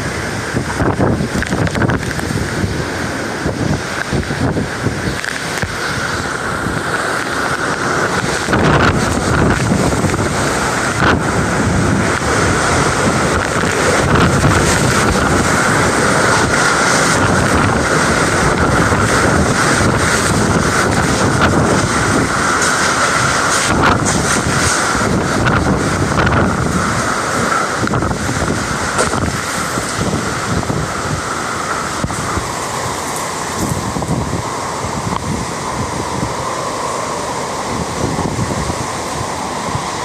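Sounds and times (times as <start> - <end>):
strong wind buffeting microphone: 0.0 - 40.0.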